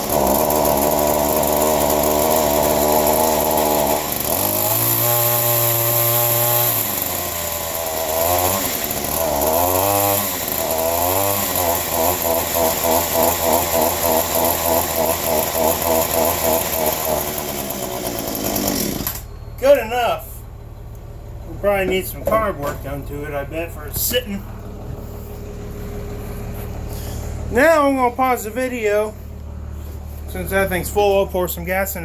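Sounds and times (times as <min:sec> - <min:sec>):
leaf blower engine revving: 0:00.0 - 0:20.6.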